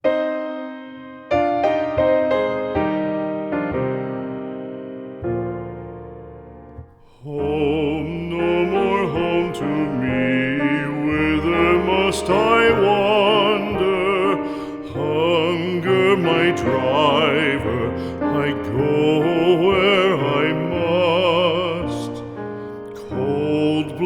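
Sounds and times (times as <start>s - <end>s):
piano accompaniment: 0.0s - 24.0s
singer with strong vibrato: 7.1s - 22.1s.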